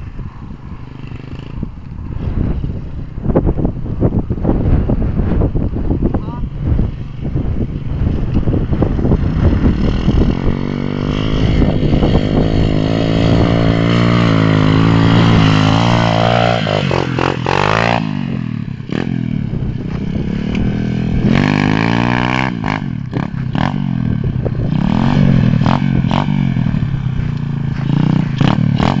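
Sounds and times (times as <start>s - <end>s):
dirtbike engine revving: 6.7s - 29.0s.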